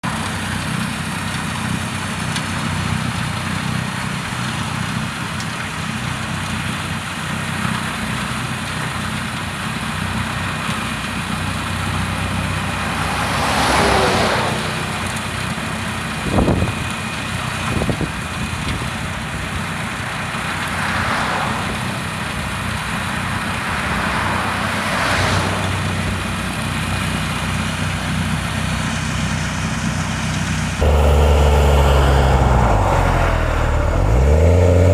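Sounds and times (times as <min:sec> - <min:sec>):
rushing noise: 0:11.8 - 0:15.6, 0:30.8 - 0:34.9
machine engine running: 0:30.6 - 0:34.9.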